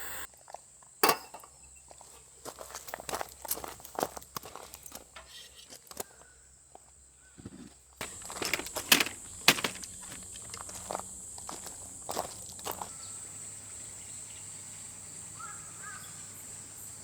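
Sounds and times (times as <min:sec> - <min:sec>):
light footsteps on ground: 0:01.9 - 0:13.1
rustling on ground: 0:07.4 - 0:13.2
clicks and knocks: 0:08.0 - 0:10.5
insect chirring: 0:08.0 - 0:17.0.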